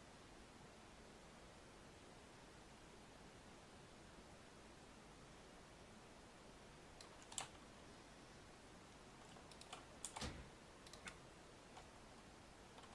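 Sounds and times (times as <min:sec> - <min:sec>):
faint hiss: 0:00.0 - 0:12.9
sharp clicks: 0:07.0 - 0:07.6, 0:09.2 - 0:11.9.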